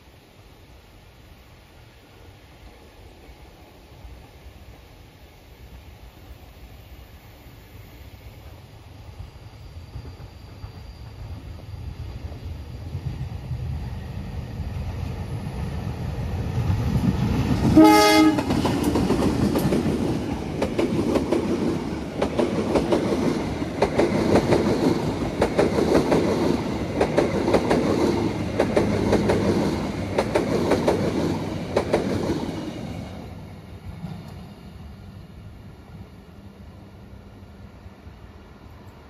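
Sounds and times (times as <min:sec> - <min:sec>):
diesel locomotive engine: 0:01.8 - 0:39.0
train horn blast: 0:17.8 - 0:18.5.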